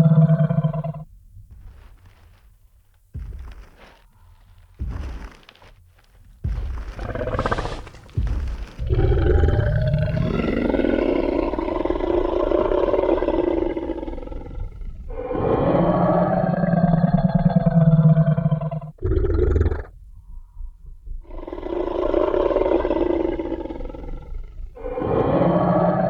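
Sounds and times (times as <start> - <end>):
dinosaur roar: 0.0 - 1.1, 7.0 - 19.9, 21.2 - 26.0
deep rumbling sounds: 0.0 - 26.0.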